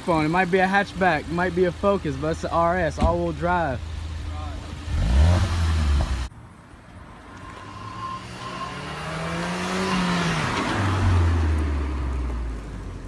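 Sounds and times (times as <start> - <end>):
car engine revving: 0.2 - 6.3, 7.2 - 12.9.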